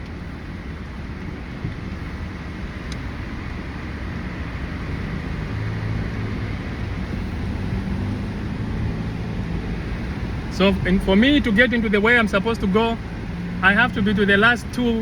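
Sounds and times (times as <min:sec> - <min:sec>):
engine and tyre rumble: 0:00.0 - 0:15.0
faint tick: 0:02.8 - 0:03.0.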